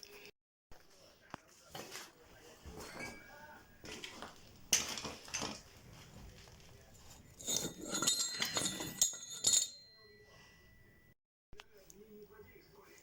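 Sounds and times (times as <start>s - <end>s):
metal pieces clinking and rattling: 7.4s - 9.8s.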